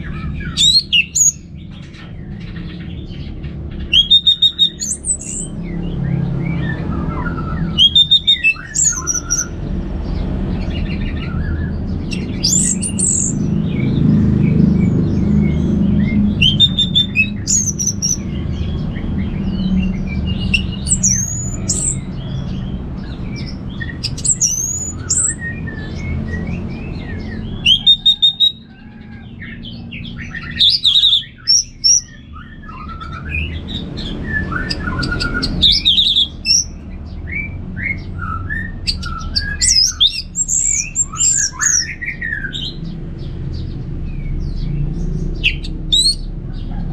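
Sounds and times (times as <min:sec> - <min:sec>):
thrush singing whistled phrases: 0:00.5 - 0:01.4, 0:03.9 - 0:05.5, 0:06.6 - 0:09.6, 0:16.4 - 0:18.2, 0:20.4 - 0:22.2, 0:23.8 - 0:25.9, 0:27.6 - 0:28.7, 0:30.4 - 0:33.4, 0:34.2 - 0:36.8.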